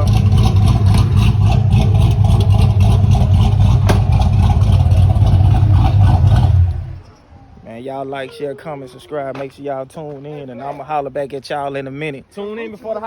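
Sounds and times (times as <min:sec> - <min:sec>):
car engine idling: 0:00.0 - 0:07.3.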